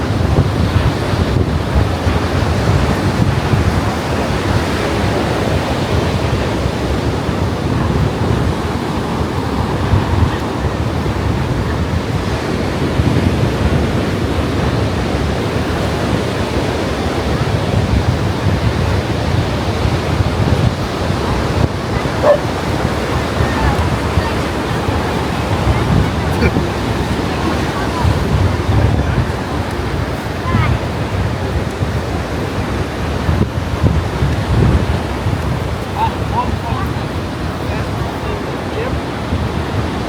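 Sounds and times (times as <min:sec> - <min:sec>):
ocean surf: 0:00.0 - 0:40.0
wind buffeting microphone: 0:00.0 - 0:40.0.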